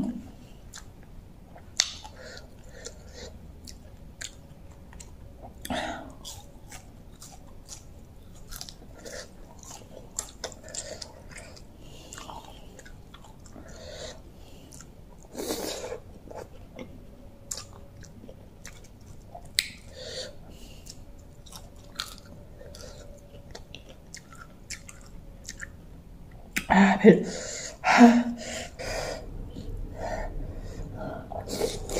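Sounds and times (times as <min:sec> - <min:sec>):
person chewing and biting: 0:01.5 - 0:25.8
wet mouth smacking: 0:01.6 - 0:02.2, 0:19.4 - 0:20.0, 0:23.5 - 0:25.8.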